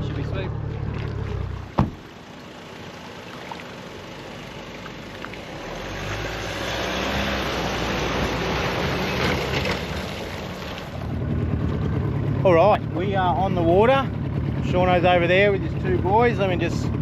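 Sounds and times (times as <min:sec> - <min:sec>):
outboard motor running: 0:00.0 - 0:05.6, 0:08.5 - 0:17.0
sharp knock: 0:01.8 - 0:02.0
water rushing: 0:02.0 - 0:11.1.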